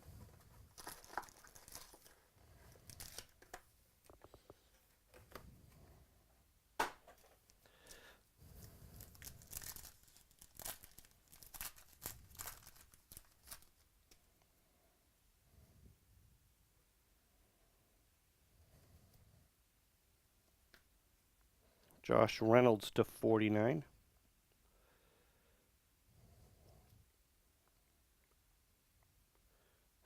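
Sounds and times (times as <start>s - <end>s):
wrappers torn and crinkled: 0.8s - 2.2s, 2.8s - 3.6s, 9.0s - 13.9s.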